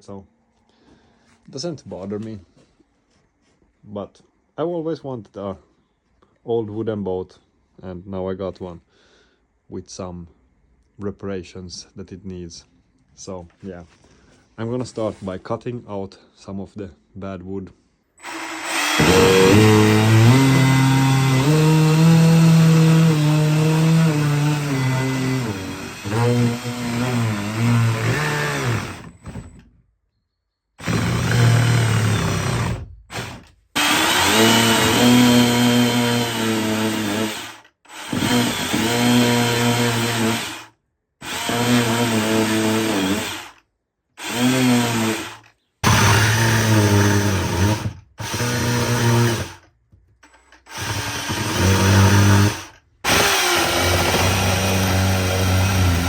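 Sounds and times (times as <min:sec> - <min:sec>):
power tool cutting wood: 0:18.2 - 0:29.6, 0:30.8 - 0:43.6, 0:44.2 - 0:49.6, 0:50.2 - 0:56.0.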